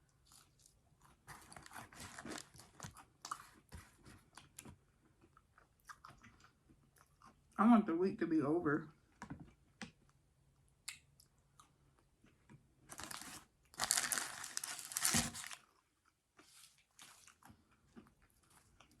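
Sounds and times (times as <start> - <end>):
chewing and crunching: 0.0 - 7.6, 10.8 - 19.0
paper wrapper crinkling: 1.4 - 2.9, 12.9 - 15.6.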